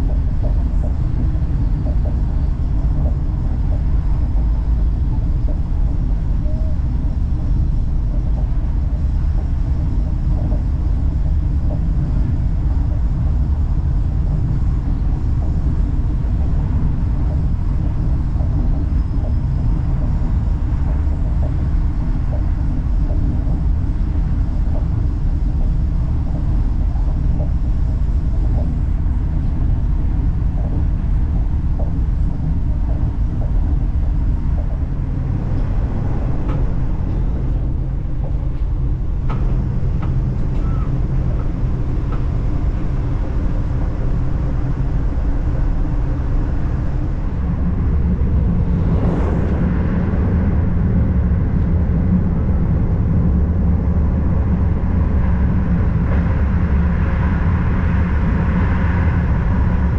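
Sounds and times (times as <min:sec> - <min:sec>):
train rumbling inside carriage: 0:00.0 - 0:59.9.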